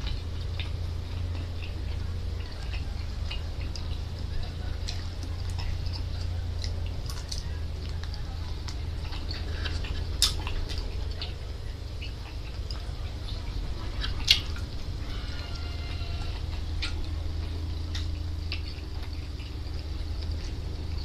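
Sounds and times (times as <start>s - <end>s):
steady low hum: 0.0s - 21.0s
wet chewing and lip smacks: 0.0s - 21.0s
sharp mouth clicks: 4.8s - 11.3s.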